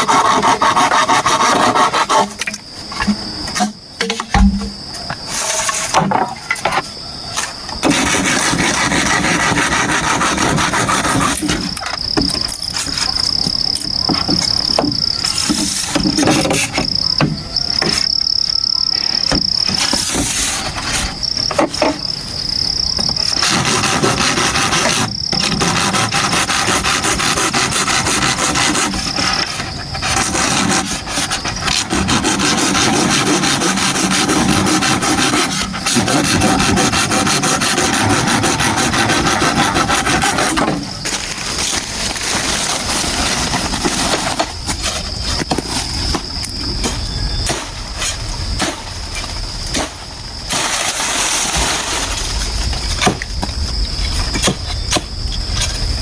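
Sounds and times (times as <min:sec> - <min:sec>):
hand tool rasping bamboo: 0:00.0 - 0:04.7, 0:07.8 - 0:18.1, 0:23.2 - 0:45.7
high insect drone: 0:00.0 - 0:56.0.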